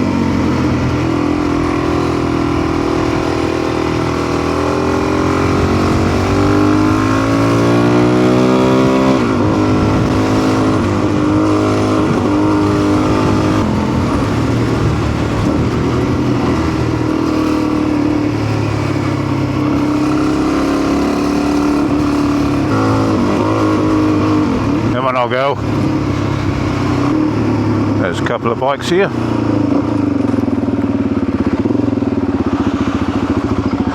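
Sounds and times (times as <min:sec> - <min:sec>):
motorcycle engine revving: 0:00.0 - 0:33.9
road and wind noise: 0:00.0 - 0:33.9.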